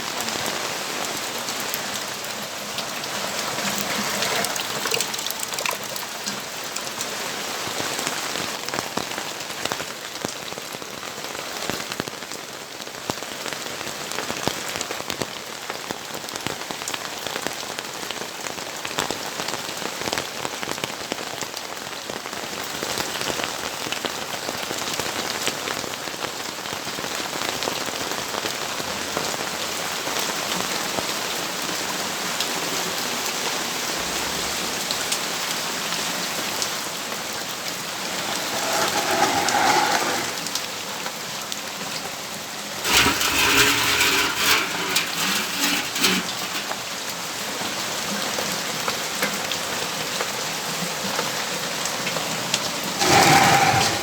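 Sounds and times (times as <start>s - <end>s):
raindrops ticking on surfaces: 0.0s - 25.2s
steady rain falling: 0.0s - 54.0s
rough pitched sound: 37.7s - 40.7s, 42.8s - 46.8s.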